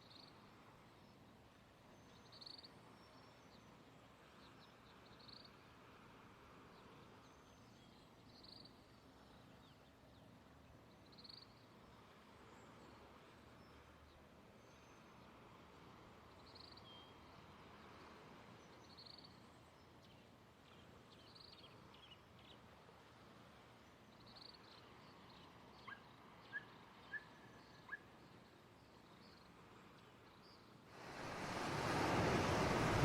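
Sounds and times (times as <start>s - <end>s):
faint outdoor hiss: 0.0s - 33.0s
ocean surf: 30.9s - 33.0s.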